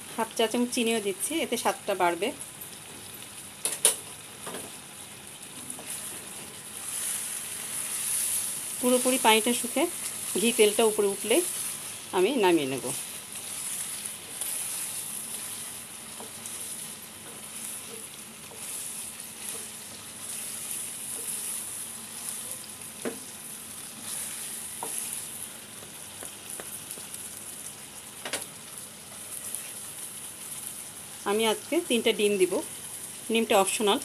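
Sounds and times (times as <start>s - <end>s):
chicken sizzling in oil: 0.0s - 34.0s
spatula knocking on pan: 25.8s - 27.1s.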